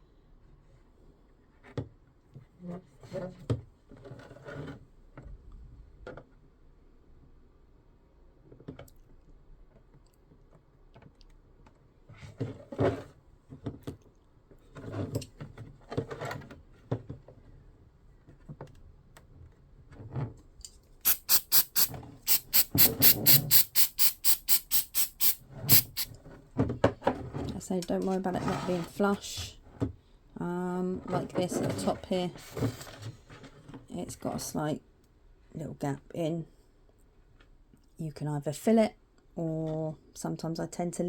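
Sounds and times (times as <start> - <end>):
sharp rasping strokes: 21.1 - 26.1.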